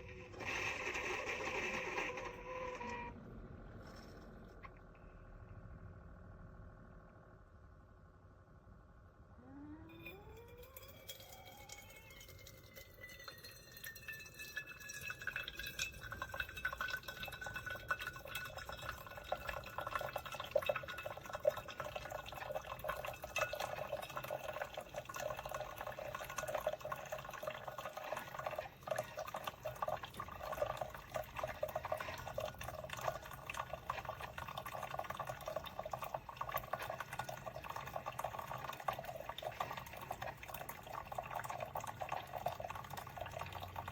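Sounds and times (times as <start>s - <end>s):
liquid pouring into a container: 10.0s - 43.9s.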